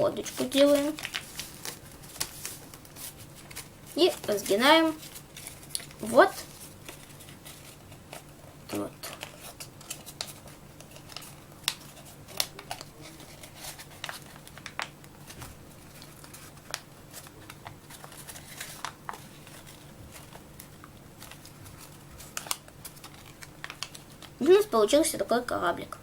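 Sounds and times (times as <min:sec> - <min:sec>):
paper crinkling: 0:00.0 - 0:25.0
paper creasing clicks: 0:00.2 - 0:07.4.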